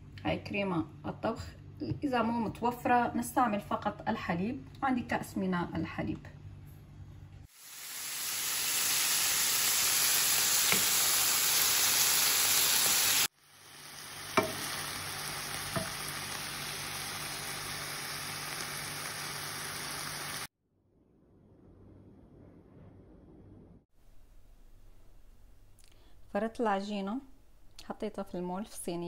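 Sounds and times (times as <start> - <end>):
chicken sizzling in a pan: 7.5 - 20.5
spatula knocking on a pan: 14.3 - 14.8, 15.7 - 16.0.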